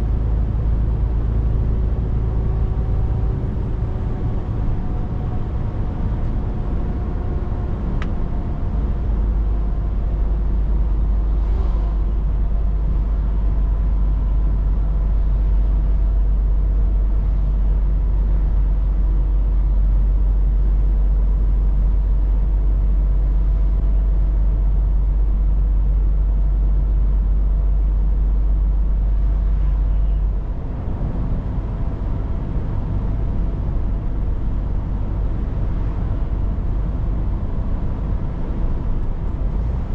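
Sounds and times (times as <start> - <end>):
deep low rumble: 0.0 - 39.9
truck engine and road noise: 0.0 - 39.9.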